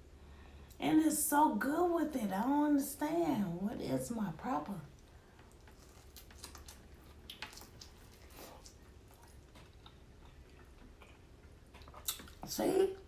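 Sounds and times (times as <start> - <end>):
person chewing wetly: 4.9 - 12.5.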